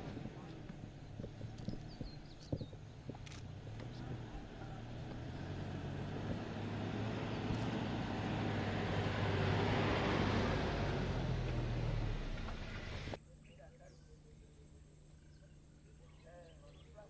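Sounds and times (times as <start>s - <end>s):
vehicle engine running: 0.0s - 13.2s.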